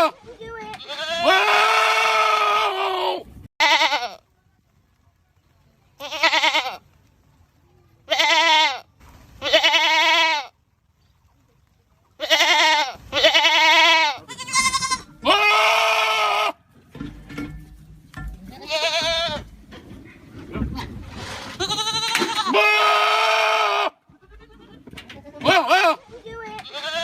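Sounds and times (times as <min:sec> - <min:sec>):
goats screaming: 0:00.8 - 0:04.0, 0:12.2 - 0:16.6, 0:21.6 - 0:24.8.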